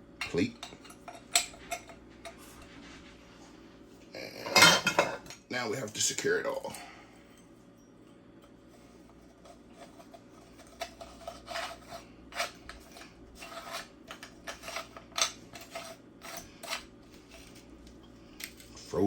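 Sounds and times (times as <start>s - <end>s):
metal parts rasping and scraping: 9.3s - 17.6s.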